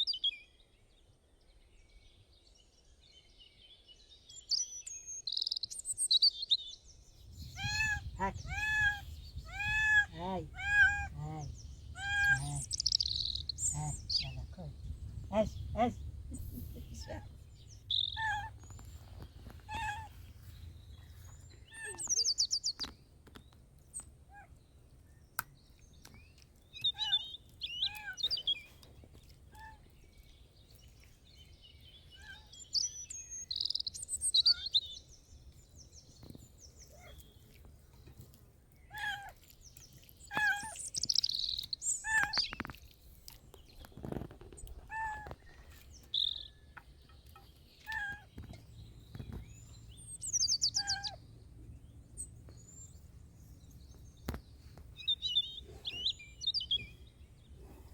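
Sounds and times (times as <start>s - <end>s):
birds chirping and trilling: 1.8s - 57.9s
low background rumble: 7.2s - 22.8s, 48.3s - 57.9s
short pitched bird calls: 7.2s - 22.9s, 44.7s - 51.2s.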